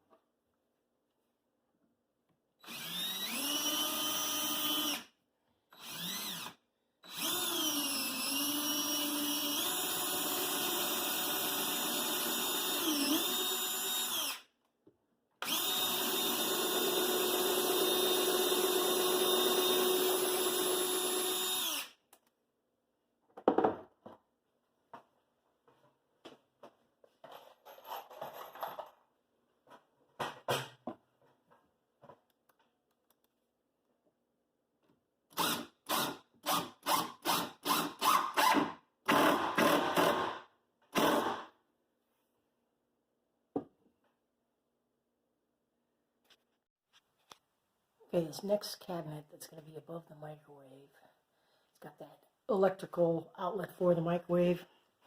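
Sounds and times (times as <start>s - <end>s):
power drill driving screws: 2.6s - 5.1s, 5.8s - 14.5s, 15.4s - 22.0s, 35.3s - 41.5s.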